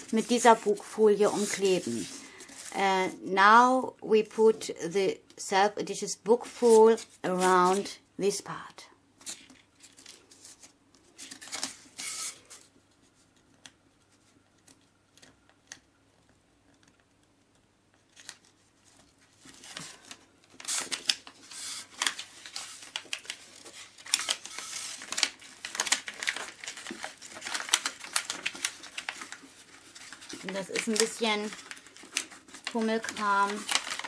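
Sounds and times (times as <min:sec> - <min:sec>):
plastic film crinkling and rustling: 0:00.0 - 0:03.0, 0:09.2 - 0:15.9, 0:18.0 - 0:34.0.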